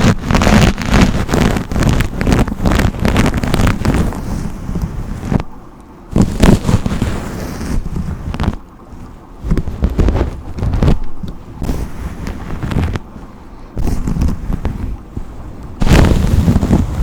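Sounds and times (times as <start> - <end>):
deep microphone rumble: 0.0 - 17.0
brush strokes through hair: 6.2 - 8.5.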